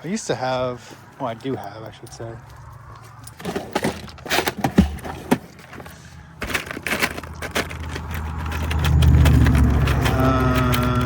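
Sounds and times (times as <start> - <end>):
small parts rattling: 3.2 - 11.0
low engine hum: 7.1 - 11.0.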